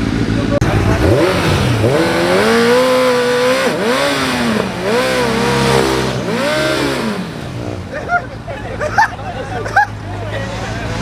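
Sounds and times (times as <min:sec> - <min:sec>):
dirt bike engine revving: 0:00.0 - 0:08.1.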